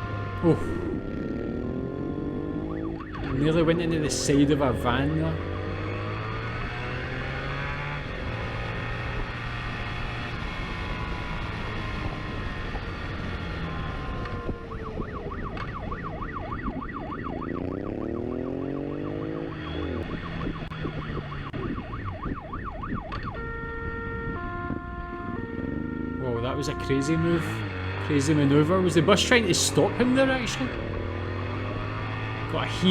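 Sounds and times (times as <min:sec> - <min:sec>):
police siren yelping: 0:00.0 - 0:07.2, 0:13.0 - 0:27.9
vehicle engines revving: 0:00.0 - 0:32.9.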